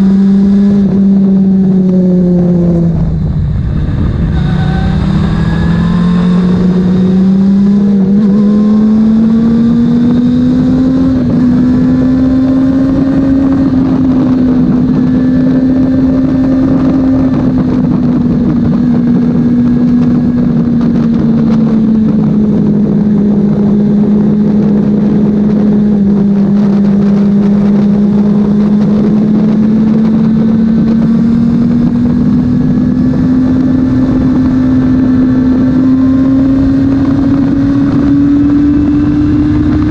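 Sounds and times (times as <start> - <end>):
motorcycle engine running at high revs: 0.0 - 39.9.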